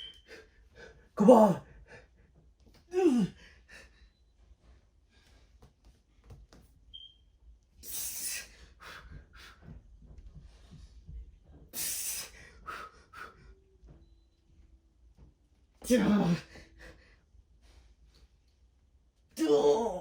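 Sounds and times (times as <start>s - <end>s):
man breathing hard: 11.7s - 13.5s.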